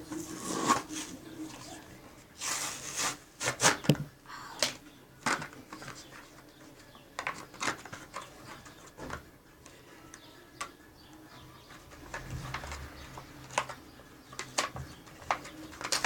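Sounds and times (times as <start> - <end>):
toy packaging clicks and crackles: 4.6 - 10.8, 11.6 - 16.0.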